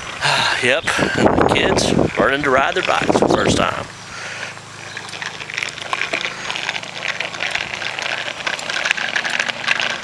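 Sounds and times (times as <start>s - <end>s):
bicycles rattling and clicking: 0.0s - 10.0s.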